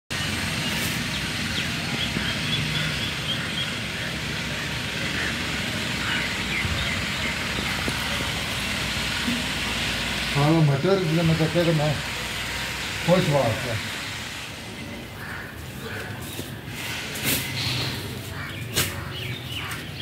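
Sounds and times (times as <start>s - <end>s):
bird chirping: 0.1s - 4.6s.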